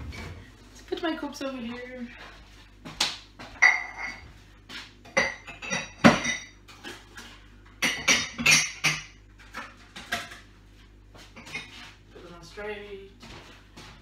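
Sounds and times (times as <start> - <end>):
cups clinking: 3.5 - 4.2, 5.1 - 10.4.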